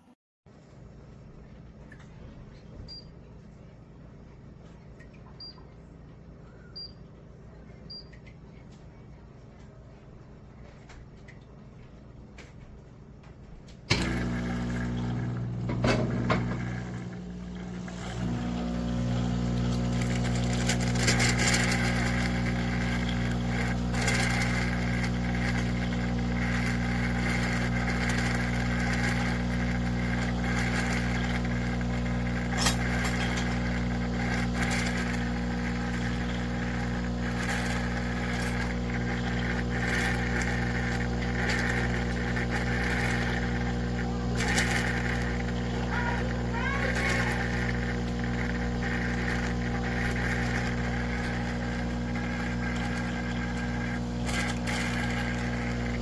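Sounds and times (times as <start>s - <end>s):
mechanical hum with hiss: 30.0s - 56.0s.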